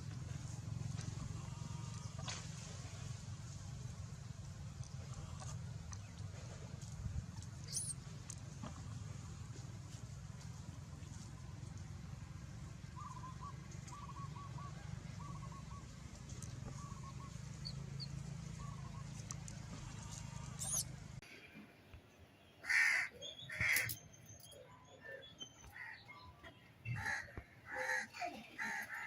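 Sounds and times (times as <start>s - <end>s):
low steady rumble: 0.0s - 21.2s
crow cawing: 22.6s - 23.9s, 27.0s - 29.0s.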